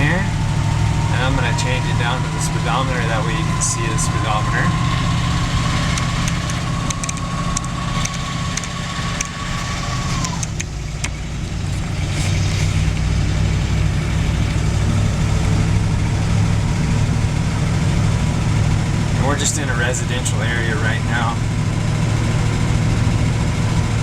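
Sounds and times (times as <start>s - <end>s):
thin steady tone: 0.0s - 11.0s
truck engine running: 0.0s - 24.0s.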